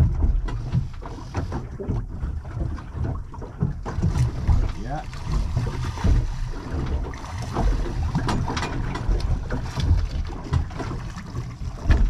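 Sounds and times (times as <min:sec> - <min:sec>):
wind buffeting microphone: 0:00.0 - 0:01.0.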